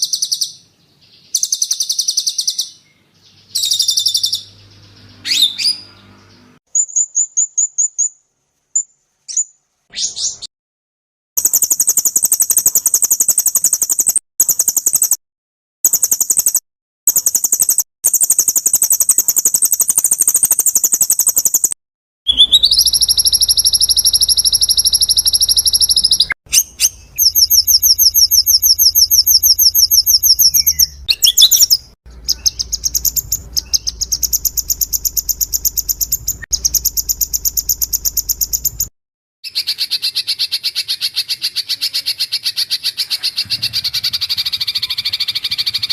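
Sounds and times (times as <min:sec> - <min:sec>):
songbird trills: 0:00.0 - 0:08.2, 0:11.4 - 0:15.2, 0:15.9 - 0:45.9
low hum: 0:32.1 - 0:38.9.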